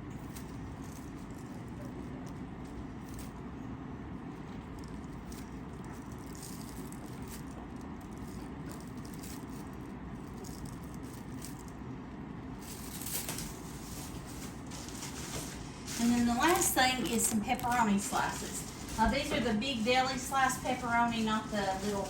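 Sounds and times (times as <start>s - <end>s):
steady low hum: 0.0s - 22.0s
packaging rustling: 12.6s - 22.0s.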